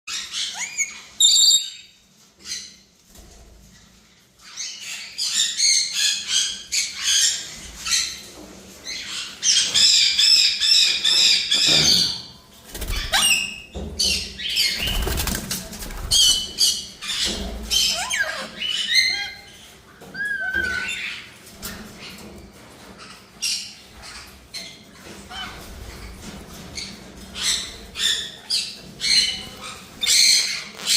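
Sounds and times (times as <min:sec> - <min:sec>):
birds chirping and squawking: 0:00.1 - 0:30.9
wings flapping: 0:12.6 - 0:13.5, 0:14.6 - 0:16.6.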